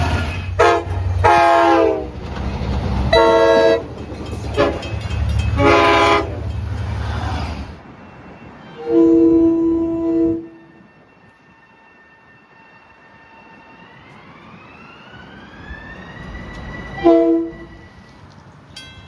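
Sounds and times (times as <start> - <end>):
train horn chord blast: 0.0 - 2.2, 3.1 - 3.9, 4.5 - 4.9, 5.5 - 6.5, 8.8 - 10.6, 17.0 - 18.0
train whine rising in pitch: 0.0 - 18.4.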